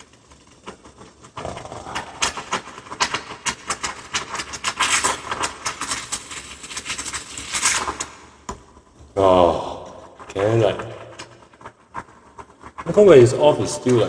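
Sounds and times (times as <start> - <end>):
espresso steam wand sputtering: 0.0 - 8.1
steam spitting crackles: 0.0 - 14.0.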